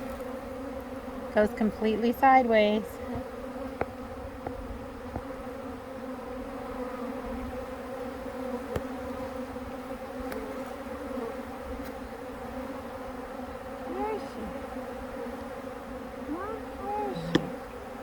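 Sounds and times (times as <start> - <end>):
bee swarm buzzing: 0.0 - 18.0.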